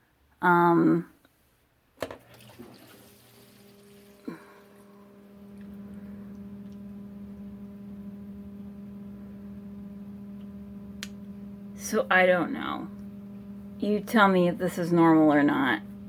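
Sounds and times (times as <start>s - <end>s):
electric motor hum: 2.0s - 16.0s
water pouring: 2.2s - 5.8s.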